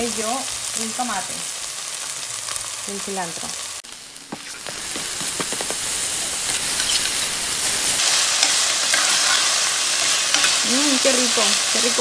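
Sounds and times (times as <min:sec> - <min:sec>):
onion and garlic sizzling in oil: 0:00.0 - 0:12.0
food being stirred in pan: 0:03.6 - 0:12.0.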